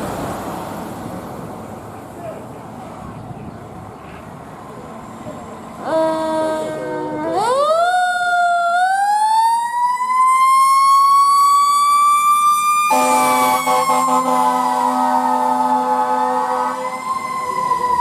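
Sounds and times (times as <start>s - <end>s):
air horn blare: 5.8s - 7.5s, 12.9s - 17.0s
fire engine siren wailing: 5.8s - 18.0s.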